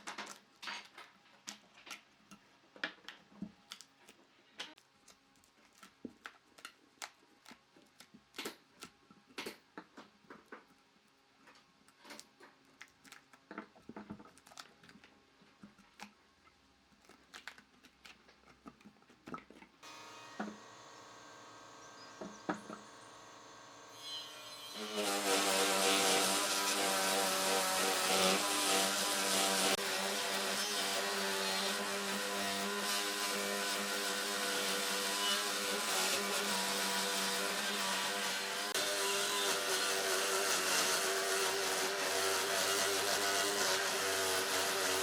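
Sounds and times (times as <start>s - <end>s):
motor humming: 19.8s - 28.8s.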